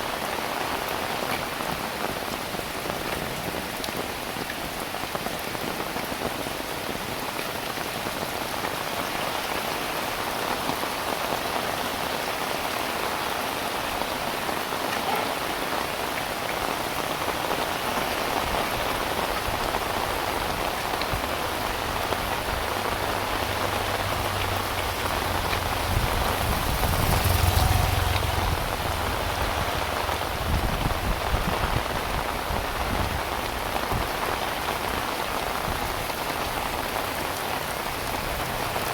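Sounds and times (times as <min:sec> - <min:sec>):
heavy rain patter: 0:00.0 - 0:38.9
low rumble: 0:22.5 - 0:31.5.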